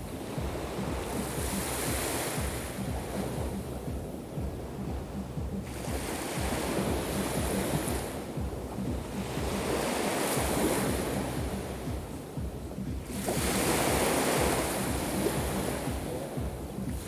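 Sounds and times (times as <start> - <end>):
sea waves breaking on shore: 0.0 - 17.0
wind rumble on microphone: 0.0 - 17.0.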